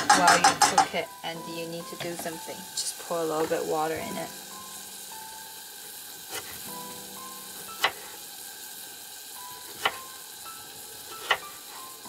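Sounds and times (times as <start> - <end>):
knife knocking on cutting board: 0.0 - 0.9
vegetables sizzling in a pot: 0.0 - 12.0.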